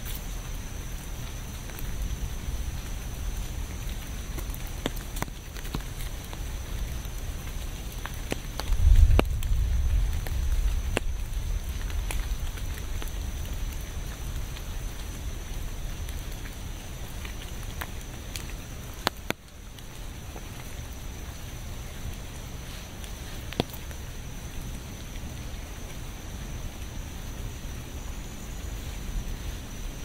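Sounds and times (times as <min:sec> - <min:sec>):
raindrops tapping: 0:00.0 - 0:30.0
steady rain: 0:00.0 - 0:30.0
low rumble: 0:08.7 - 0:16.1.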